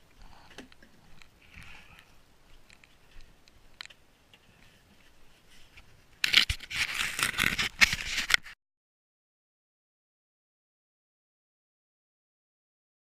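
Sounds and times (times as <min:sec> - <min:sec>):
snow scraping and crunching: 0:04.8 - 0:08.6.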